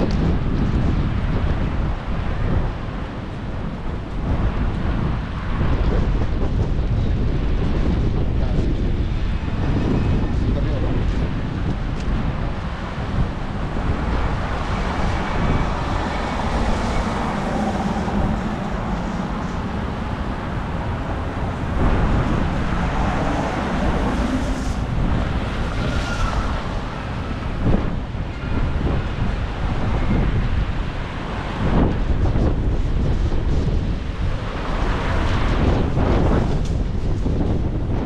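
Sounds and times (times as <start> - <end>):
wind buffeting microphone: 0.0 - 38.0
low rumble: 3.7 - 30.6.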